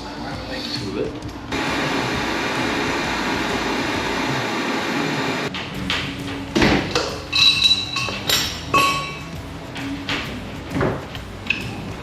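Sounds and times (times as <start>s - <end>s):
power tool running: 1.5s - 5.5s
ringing metal clink: 7.3s - 9.4s.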